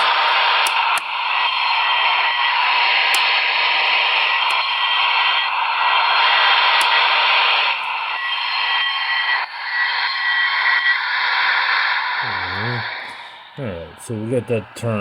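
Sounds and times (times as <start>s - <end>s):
sharp clicks: 0.0s - 1.8s
steam hiss through small speaker: 11.2s - 15.0s.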